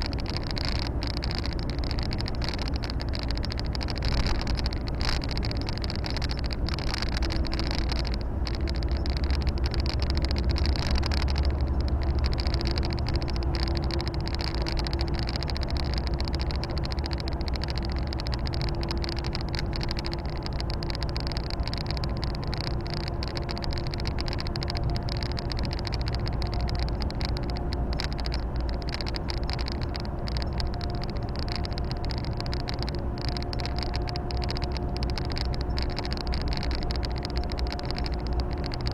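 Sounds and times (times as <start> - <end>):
road and tyre noise: 0.0 - 38.9.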